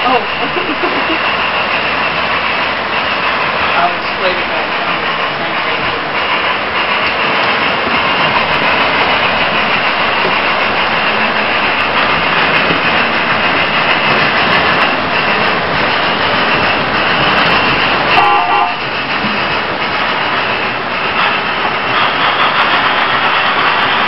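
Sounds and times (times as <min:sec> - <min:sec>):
model trains rolling on track: 0:00.0 - 0:24.0.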